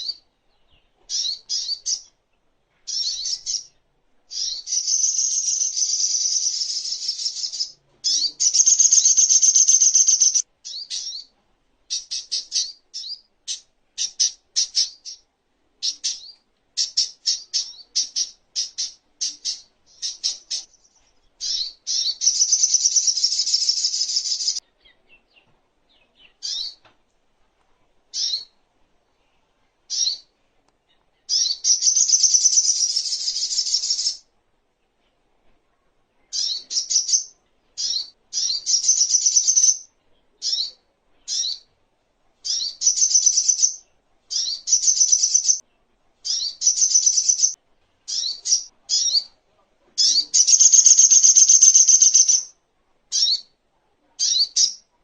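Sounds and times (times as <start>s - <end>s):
bird chirps: 0.0s - 2.2s, 2.8s - 11.3s, 11.9s - 26.9s, 28.1s - 28.6s, 29.9s - 34.3s, 36.2s - 41.7s, 42.4s - 45.6s, 46.2s - 49.4s, 50.0s - 53.6s, 54.2s - 54.9s
songbird chattering trills: 4.3s - 11.3s, 50.0s - 52.5s.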